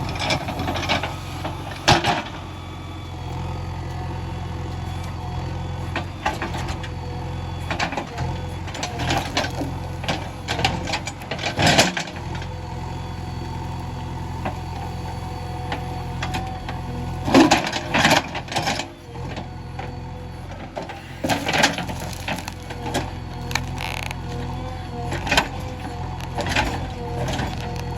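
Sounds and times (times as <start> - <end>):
diesel engine running: 0.0 - 27.9
steady whine: 20.8 - 27.9.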